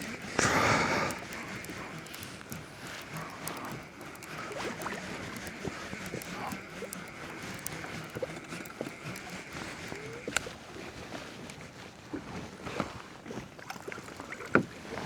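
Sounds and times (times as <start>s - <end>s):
gear knocking against kayak: 0.0s - 10.6s.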